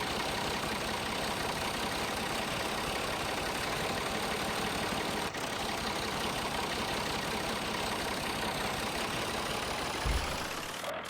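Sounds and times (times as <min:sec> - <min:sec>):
engine idling: 0:00.0 - 0:11.0
short low thump: 0:10.0 - 0:10.7.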